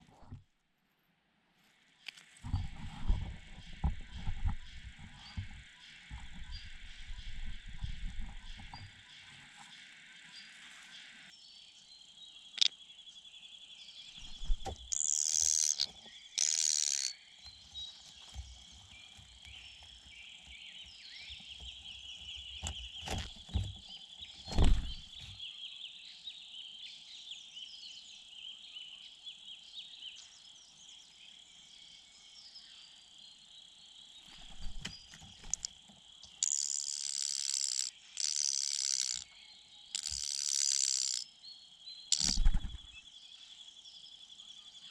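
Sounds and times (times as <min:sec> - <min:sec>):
insects trilling: 0:14.2 - 0:23.6, 0:33.2 - 0:44.8.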